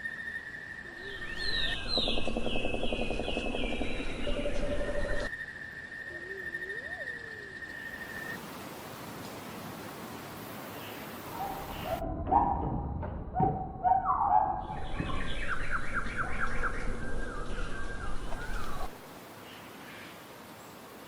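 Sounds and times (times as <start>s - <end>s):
bird calls: 0.8s - 5.3s, 10.8s - 12.1s, 13.4s - 20.2s.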